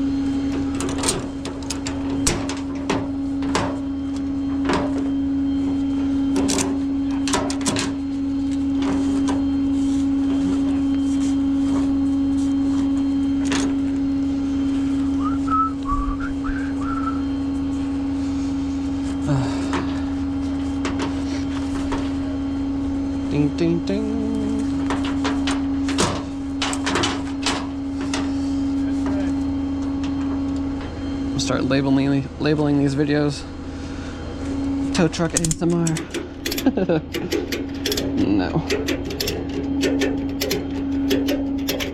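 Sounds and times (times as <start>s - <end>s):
truck engine droning: 0.0s - 41.9s
metal clicks and clanks: 35.3s - 41.9s.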